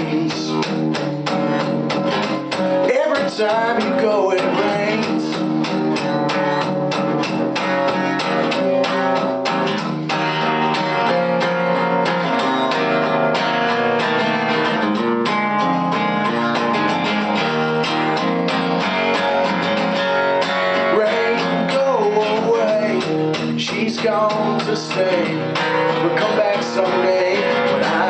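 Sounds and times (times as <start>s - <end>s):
guitar plucked and strummed: 0.0s - 28.0s.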